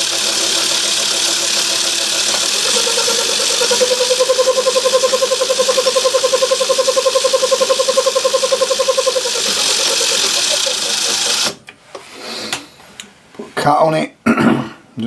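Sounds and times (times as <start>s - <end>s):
lathe motor hiss: 0.0s - 11.6s
pulsing whine: 0.0s - 11.6s.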